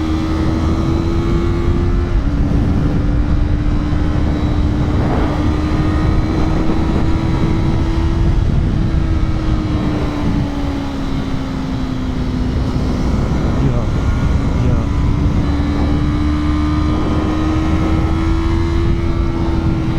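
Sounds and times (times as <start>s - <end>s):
motorcycle engine at high revs: 0.0s - 19.9s
wind rumble on microphone: 0.0s - 19.9s.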